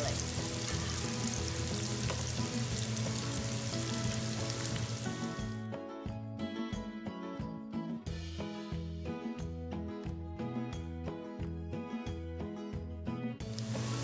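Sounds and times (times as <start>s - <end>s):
onions sizzling in oil: 0.0s - 5.5s, 13.4s - 14.0s
background music: 0.0s - 14.0s.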